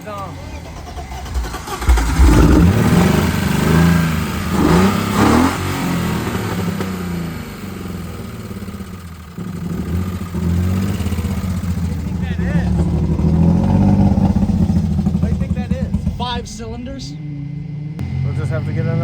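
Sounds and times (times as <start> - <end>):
car engine running rough: 0.0 - 19.0
engine revving: 0.0 - 19.0.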